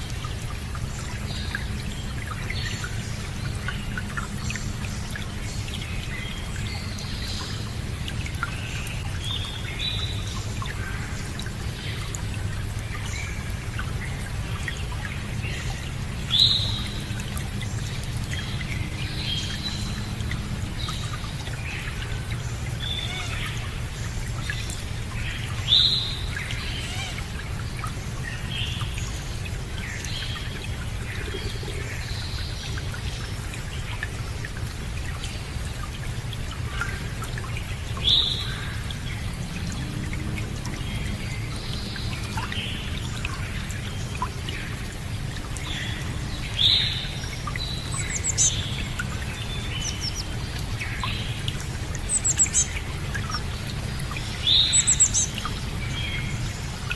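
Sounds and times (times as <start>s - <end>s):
running water: 0.0s - 56.9s
birds chirping: 45.7s - 56.8s.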